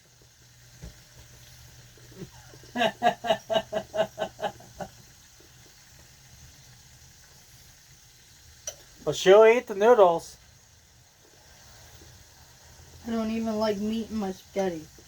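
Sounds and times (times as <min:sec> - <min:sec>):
person laughing: 0:02.2 - 0:05.0.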